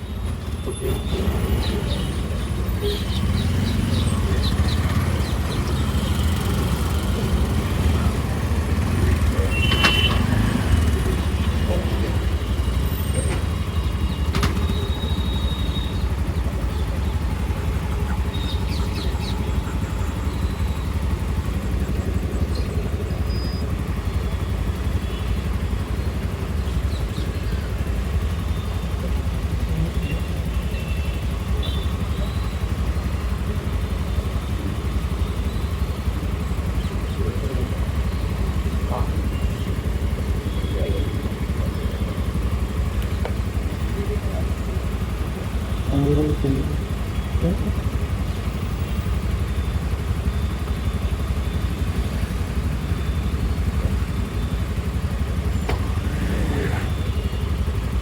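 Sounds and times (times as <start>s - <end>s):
faint high beeps: 37.7s - 57.9s.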